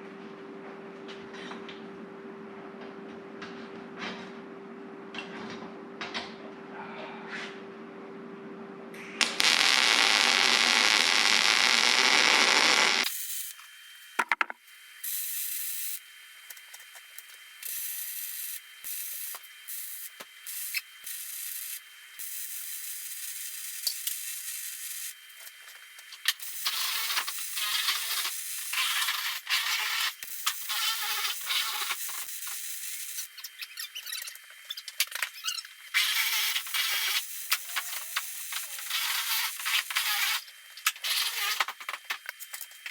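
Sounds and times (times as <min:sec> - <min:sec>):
welding crackling hiss: 0:09.2 - 0:42.9.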